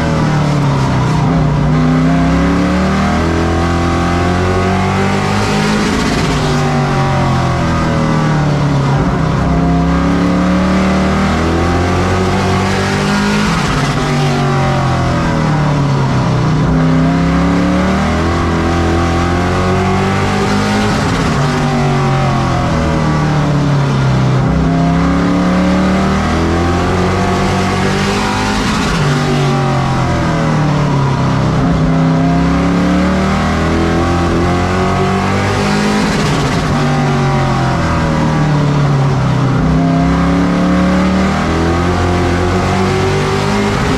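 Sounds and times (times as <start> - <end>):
race truck engines: 0.0 - 43.9.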